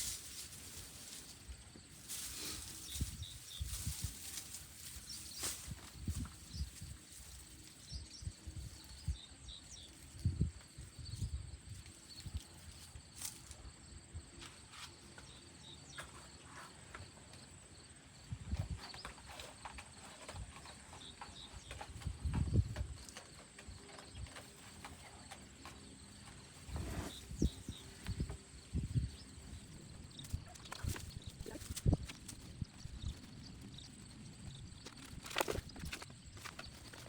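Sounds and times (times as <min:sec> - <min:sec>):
hands digging through soil: 0:00.0 - 0:07.8.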